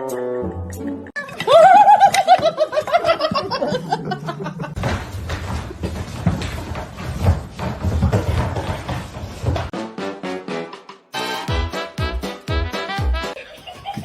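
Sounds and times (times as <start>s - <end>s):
high-pitched laugh: 1.2s - 4.8s, 13.4s - 14.0s.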